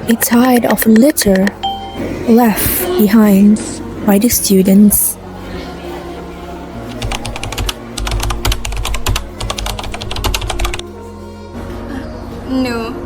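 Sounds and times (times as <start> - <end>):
steady low tone: 1.4 - 6.8
keyboard typing clicks: 6.9 - 10.8.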